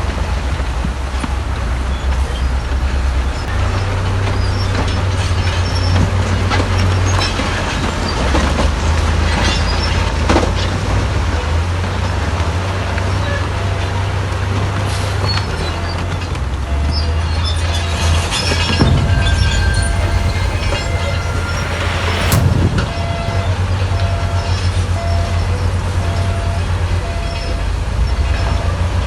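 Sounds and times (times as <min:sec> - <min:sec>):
diesel engine drone: 0:15.8 - 0:28.1
knocks and clatter: 0:18.7 - 0:24.3.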